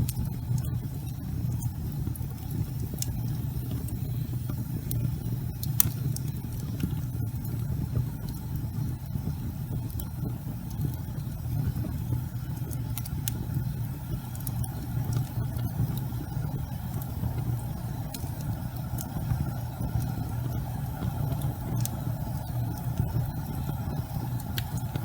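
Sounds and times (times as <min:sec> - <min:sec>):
fire crackles and pops: 0:00.0 - 0:25.0
fire roaring in fireplace: 0:00.0 - 0:25.0.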